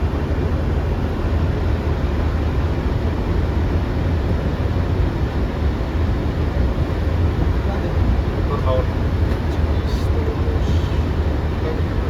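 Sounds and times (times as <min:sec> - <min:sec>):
aircraft cockpit rumble: 0:00.0 - 0:12.0
airflow and engine noise: 0:00.0 - 0:12.0.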